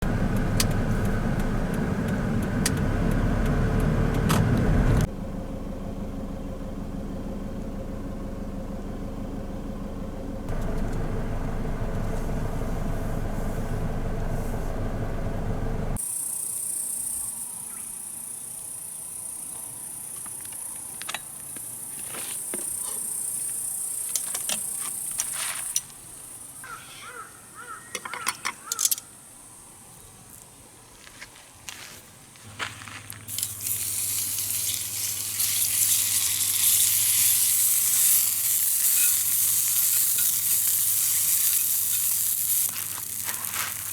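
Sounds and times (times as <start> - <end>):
van engine and road rumble: 0.0 - 16.0, 30.6 - 43.9.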